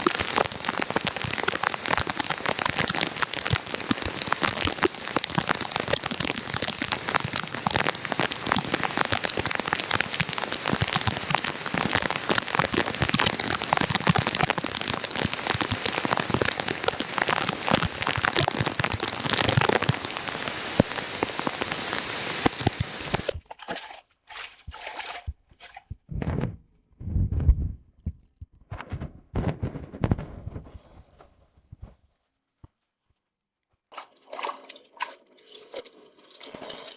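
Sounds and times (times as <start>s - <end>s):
heavy rain pattering: 0.0s - 23.4s.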